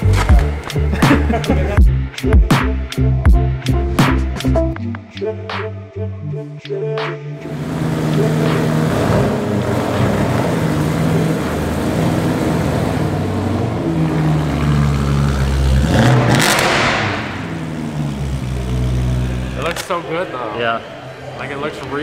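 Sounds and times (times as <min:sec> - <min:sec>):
car engine idling and revving: 0:07.4 - 0:20.0.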